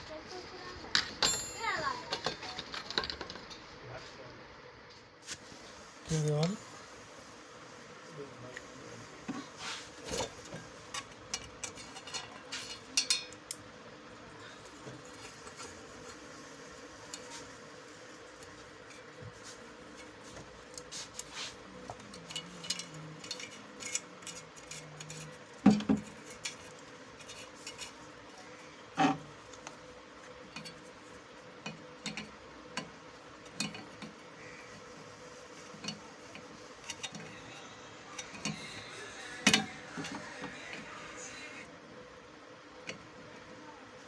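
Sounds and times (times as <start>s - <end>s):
faint steady hum: 0.0s - 44.0s
metallic tool clinks: 1.2s - 2.6s.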